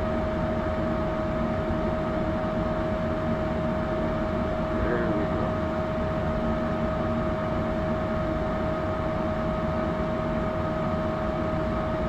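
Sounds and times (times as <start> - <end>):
constant whine: 3.8 - 7.8.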